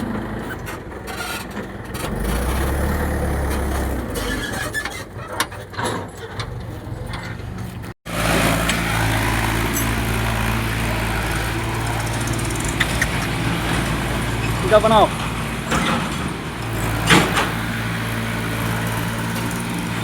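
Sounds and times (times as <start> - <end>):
tractor engine running: 0.0 - 20.0
rattling and clicks: 8.5 - 20.0.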